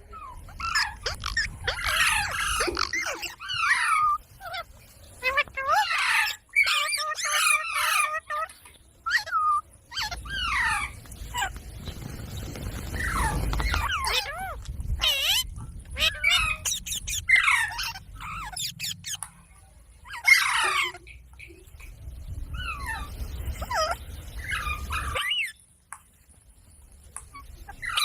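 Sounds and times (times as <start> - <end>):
parrot squawks: 0.1 - 11.5, 13.0 - 19.2, 20.0 - 21.1, 22.6 - 25.6
parrot chirps and whistles: 0.2 - 8.4, 9.0 - 11.5, 13.0 - 19.2, 22.6 - 25.6.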